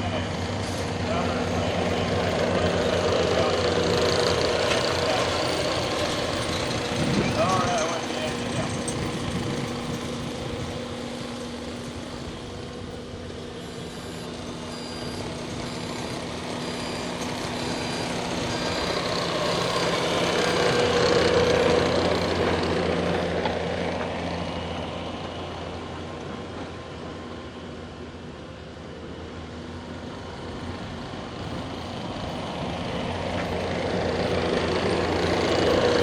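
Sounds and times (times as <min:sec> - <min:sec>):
heavy vehicle engines running: 0:00.0 - 0:36.0
faint short beeps: 0:13.4 - 0:23.2.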